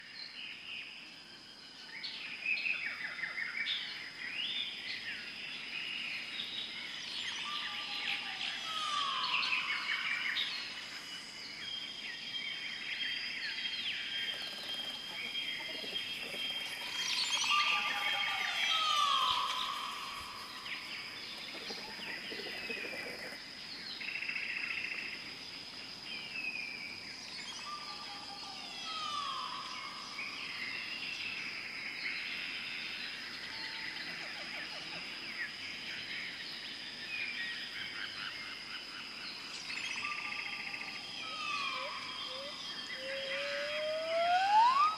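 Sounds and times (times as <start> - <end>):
small birds chirping: 2.0 - 25.5
whistled falling call: 41.3 - 44.9.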